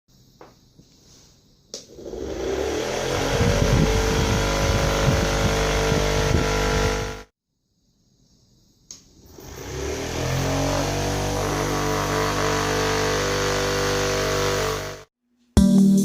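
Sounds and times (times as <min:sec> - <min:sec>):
small electric motor whining: 0:01.9 - 0:07.3, 0:09.2 - 0:15.1.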